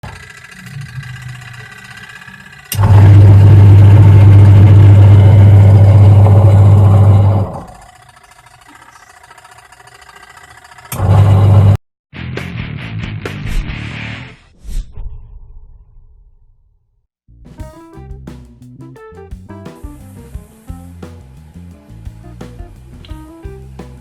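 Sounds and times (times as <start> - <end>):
washing machine motor grinding: 0.0 - 11.8, 19.9 - 24.0.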